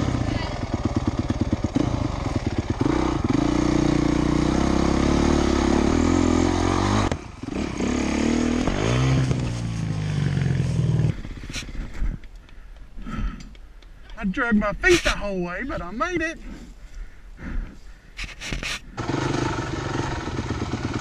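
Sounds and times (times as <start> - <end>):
dirt bike engine revving: 0.0 - 11.9, 19.0 - 21.0.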